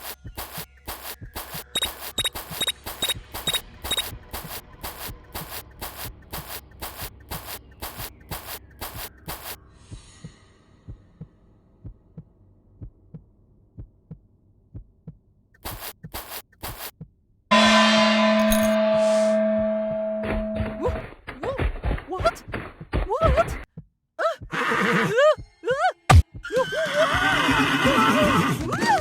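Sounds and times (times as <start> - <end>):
horse hooves clopping: 0.0 - 9.6.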